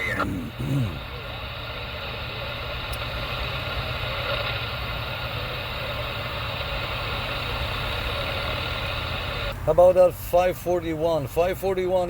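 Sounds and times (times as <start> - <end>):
radio static hiss: 0.0 - 9.6
vehicle engine running: 0.0 - 11.9.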